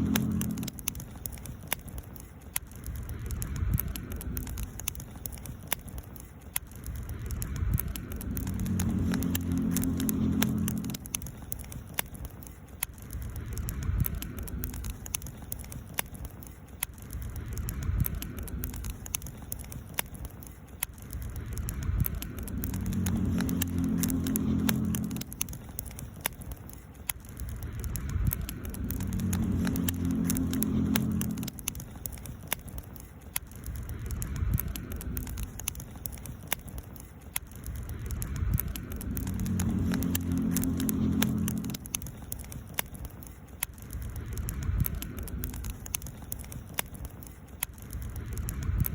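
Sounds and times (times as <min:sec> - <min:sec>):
low hum: 0:00.0 - 0:02.0, 0:06.7 - 0:12.4, 0:21.0 - 0:32.8, 0:37.5 - 0:43.3
campfire crackling: 0:00.0 - 0:48.9.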